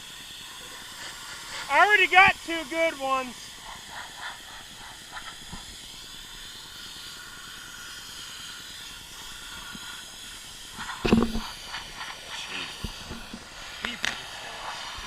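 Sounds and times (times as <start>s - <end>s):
pressure washer spray hissing: 0.0s - 15.0s.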